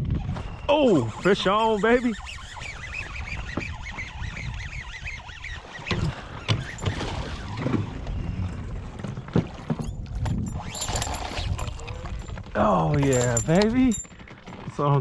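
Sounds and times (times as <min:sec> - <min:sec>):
wind rumbling on microphone: 0:00.0 - 0:15.0
knocks and splashes at boat: 0:05.6 - 0:15.0.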